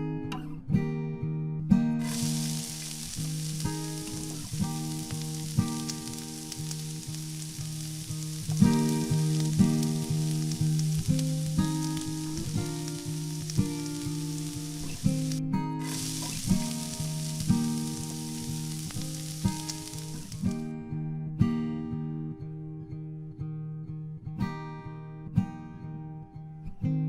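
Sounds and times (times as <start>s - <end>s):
acoustic guitar background music: 0.0s - 27.0s
oil sizzling: 2.0s - 20.6s.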